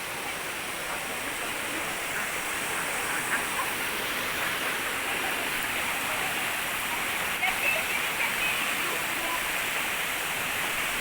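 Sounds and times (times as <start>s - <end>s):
waterfall rushing onto rocks: 0.0s - 11.0s.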